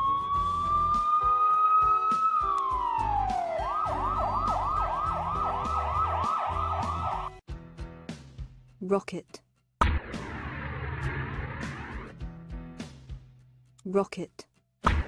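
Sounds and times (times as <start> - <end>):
police siren wailing and yelping: 0.0 - 7.4.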